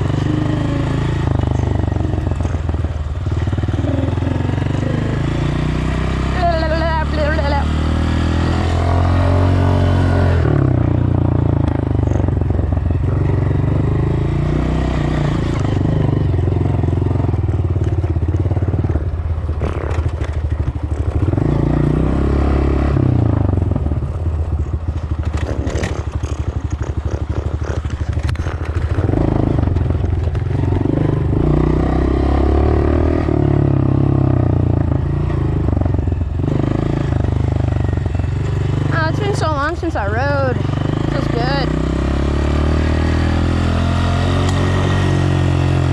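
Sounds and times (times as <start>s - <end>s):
dirt bike engine revving: 0.0s - 17.4s, 19.6s - 23.8s, 25.1s - 45.9s
bike rattling over rough ground: 17.5s - 21.4s, 24.0s - 31.2s.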